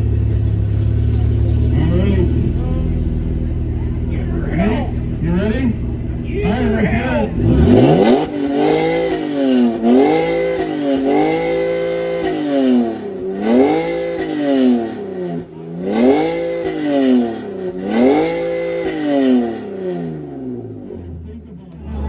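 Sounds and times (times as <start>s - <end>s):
car engine revving hard: 6.4s - 22.0s.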